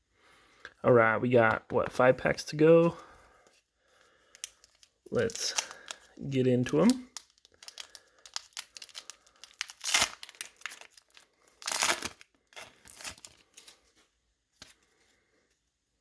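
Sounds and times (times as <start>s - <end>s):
foil wrapper tearing and crinkling: 6.8s - 13.8s.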